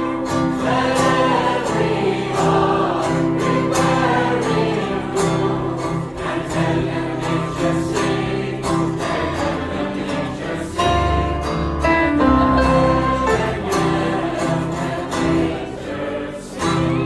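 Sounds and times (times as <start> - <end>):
group singing a hymn: 0.0 - 17.0
strummed guitar: 0.0 - 17.0.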